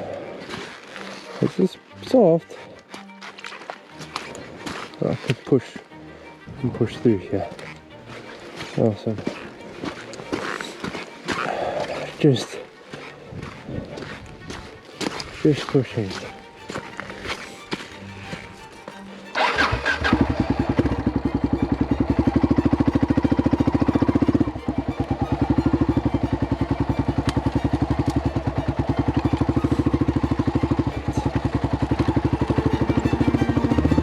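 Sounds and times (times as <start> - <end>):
motorcycle engine running: 19.4 - 34.0.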